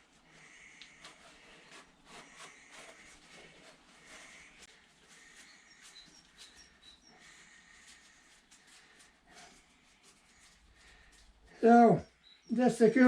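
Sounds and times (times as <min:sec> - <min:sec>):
faint high chirps: 0:05.1 - 0:07.9.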